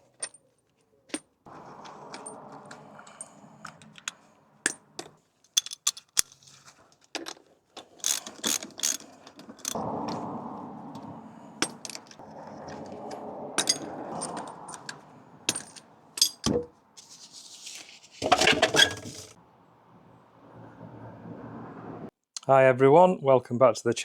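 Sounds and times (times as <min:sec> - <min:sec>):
objects clattering: 0:00.0 - 0:09.8, 0:11.6 - 0:19.4
metallic clicks and clinks: 0:01.1 - 0:09.8, 0:11.6 - 0:12.2, 0:13.6 - 0:16.6.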